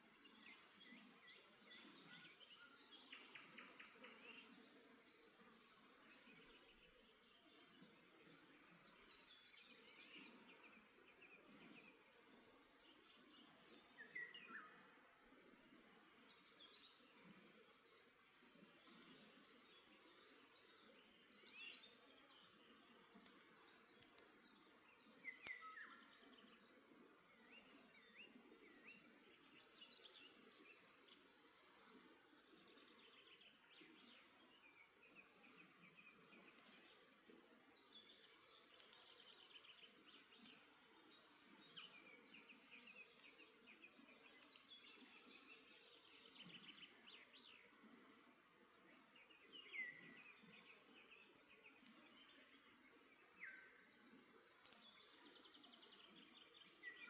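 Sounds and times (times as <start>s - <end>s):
low steady hiss: 0.0s - 57.0s
campfire crackles: 3.4s - 14.1s, 14.7s - 27.6s, 31.6s - 45.8s, 51.4s - 57.0s.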